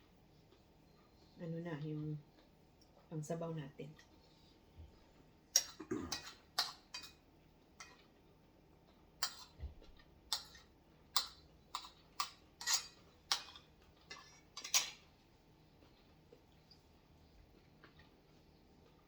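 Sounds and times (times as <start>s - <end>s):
cutlery clicking and clinking: 5.6s - 7.2s, 7.8s - 8.1s, 9.2s - 9.6s, 10.3s - 15.1s.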